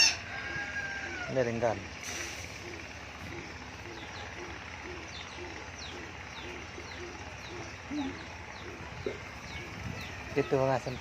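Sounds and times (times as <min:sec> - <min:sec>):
dove cooing: 0:00.0 - 0:01.3, 0:02.1 - 0:10.4
bird chirping high descending: 0:03.4 - 0:11.0.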